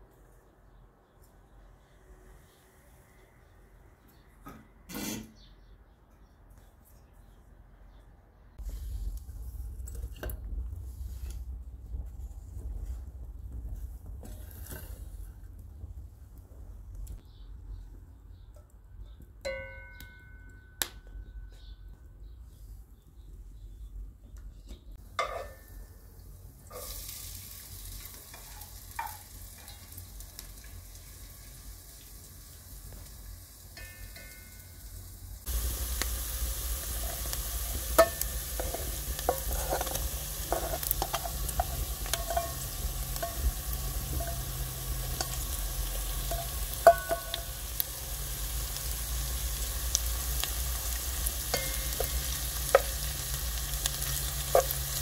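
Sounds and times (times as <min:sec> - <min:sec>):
spatula scraping a pot: 0:04.9 - 0:05.4, 0:37.0 - 0:44.5
onions sizzling in hot oil: 0:26.6 - 0:55.0.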